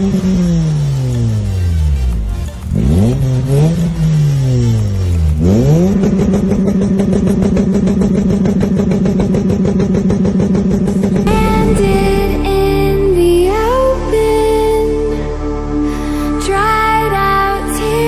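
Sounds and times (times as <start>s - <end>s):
music: 0.0s - 5.5s, 11.2s - 18.0s
car engine revving: 0.0s - 15.7s.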